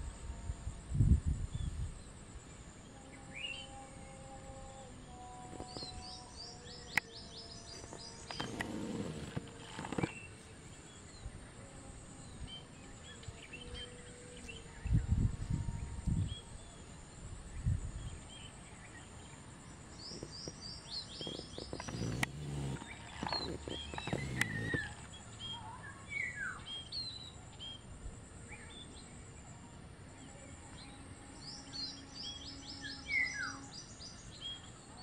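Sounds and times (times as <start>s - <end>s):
small birds chirping: 3.2s - 11.6s, 17.6s - 29.3s.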